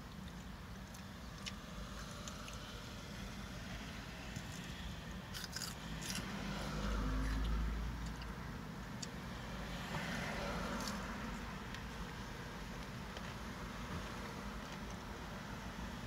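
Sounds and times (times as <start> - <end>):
crunching and chewing salad: 0.0 - 15.4.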